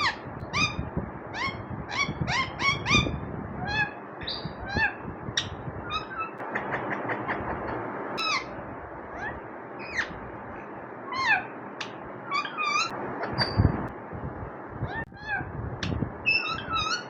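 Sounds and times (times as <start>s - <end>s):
parrot squeaky calls and whistles: 0.0s - 10.2s, 11.1s - 13.8s, 14.8s - 17.0s
steady background hiss: 0.0s - 17.0s.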